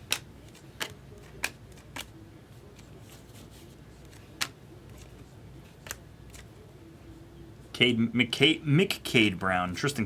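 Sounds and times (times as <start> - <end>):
cards snapping: 0.0 - 2.2, 4.0 - 6.5
faint room hum: 0.0 - 10.0.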